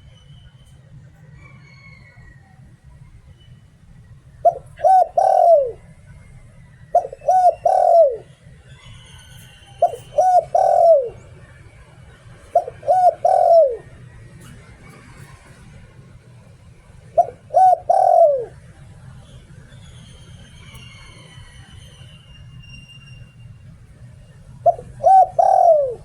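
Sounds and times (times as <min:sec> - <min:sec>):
dove cooing: 0:04.4 - 0:06.0, 0:06.9 - 0:08.4, 0:09.8 - 0:11.5, 0:12.2 - 0:14.8, 0:16.6 - 0:18.7, 0:24.6 - 0:26.0.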